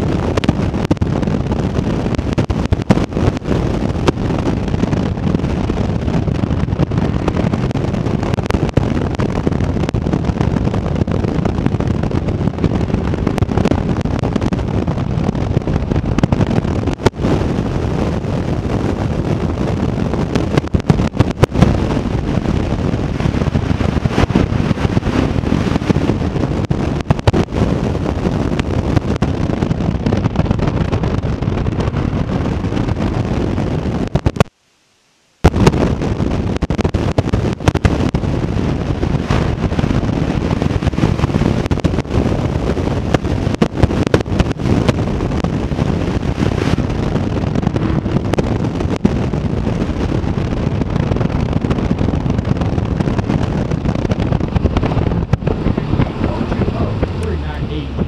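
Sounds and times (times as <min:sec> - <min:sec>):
wind on microphone: 0:00.0 - 0:58.0
car engine running: 0:53.3 - 0:58.0.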